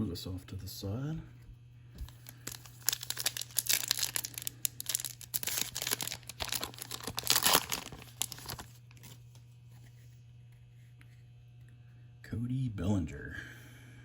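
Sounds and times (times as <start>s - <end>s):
low steady hum: 0.0s - 14.0s
wrapper crinkling and tearing: 2.0s - 9.2s.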